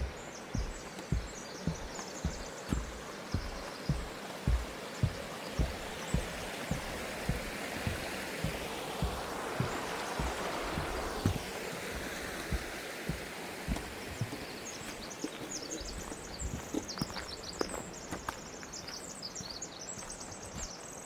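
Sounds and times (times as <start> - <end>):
stream rushing: 0.0 - 15.4
footsteps walking: 0.0 - 20.7.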